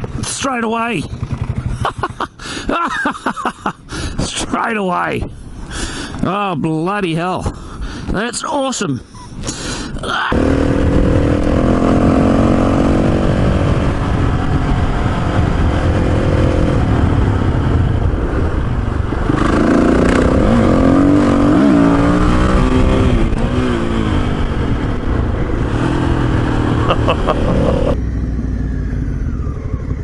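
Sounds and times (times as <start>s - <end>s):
motorcycle engine running: 0.0s - 2.4s, 10.4s - 30.0s.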